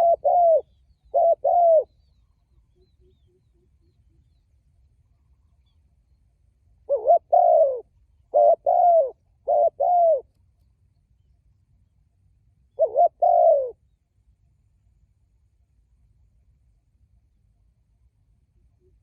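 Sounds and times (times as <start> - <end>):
dove cooing: 0.0 - 2.0, 6.9 - 10.3, 12.8 - 13.8.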